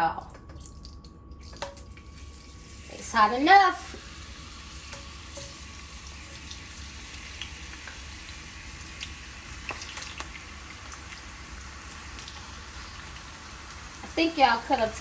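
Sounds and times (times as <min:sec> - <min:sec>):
low steady hum: 0:00.0 - 0:15.0
potatoes sizzling in hot oil: 0:02.2 - 0:15.0
oil popping and crackling: 0:06.4 - 0:14.2.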